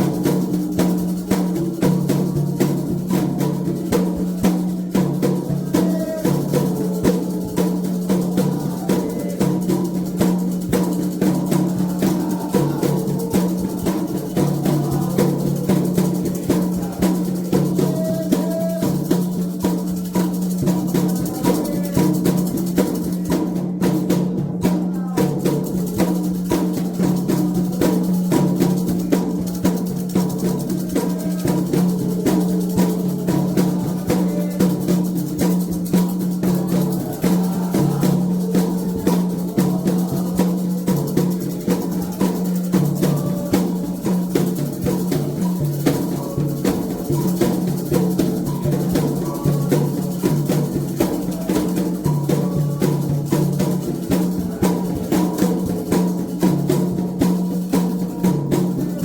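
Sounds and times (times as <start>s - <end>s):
hand drums playing fast rhythm: 0.0s - 59.0s.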